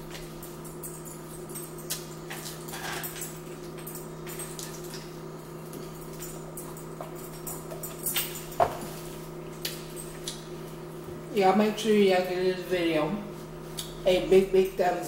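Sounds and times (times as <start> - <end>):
steady low hum: 0.0 - 15.0
chewing and mouth noises: 1.8 - 2.6.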